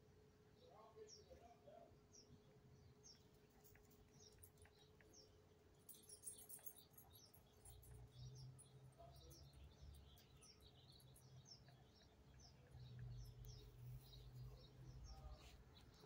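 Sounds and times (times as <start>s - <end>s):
faint rattle: 3.3s - 13.6s.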